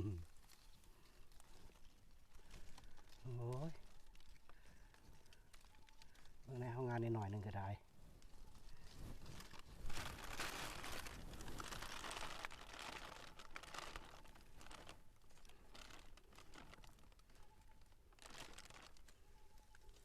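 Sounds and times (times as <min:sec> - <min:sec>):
rustling and crackling: 0:00.0 - 0:20.0.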